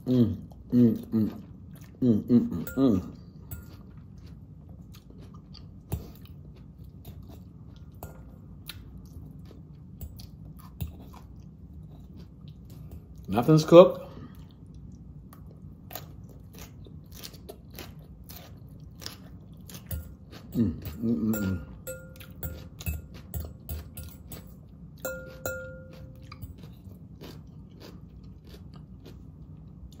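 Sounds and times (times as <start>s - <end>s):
chewing raw vegetables: 0.0s - 13.4s, 14.2s - 24.6s, 25.3s - 30.0s
person humming: 2.0s - 3.2s, 20.5s - 21.8s
fork clinking glass bowl: 2.6s - 3.9s, 20.8s - 26.7s.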